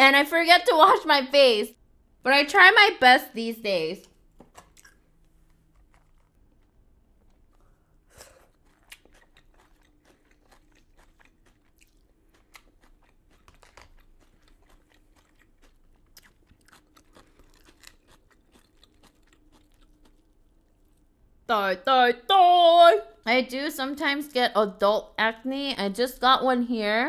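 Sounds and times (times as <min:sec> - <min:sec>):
chewing crispy fried chicken: 0:03.0 - 0:21.5.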